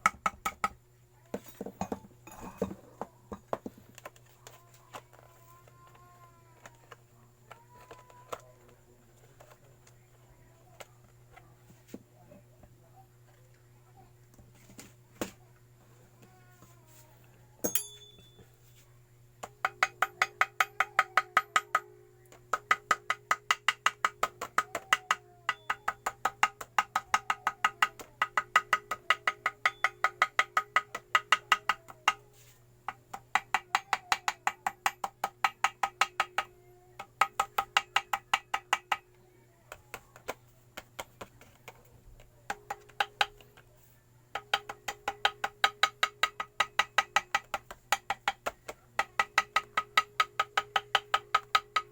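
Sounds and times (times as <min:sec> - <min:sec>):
small hammer tapping on metal: 0:00.0 - 0:08.7, 0:17.6 - 0:18.5, 0:19.4 - 0:43.7, 0:44.3 - 0:51.9.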